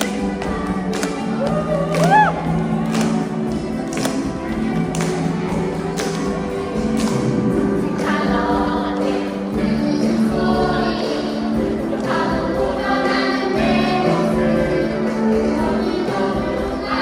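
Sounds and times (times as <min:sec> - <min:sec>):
instrumental accompaniment with beat: 0:00.0 - 0:17.0
choir singing: 0:04.3 - 0:17.0.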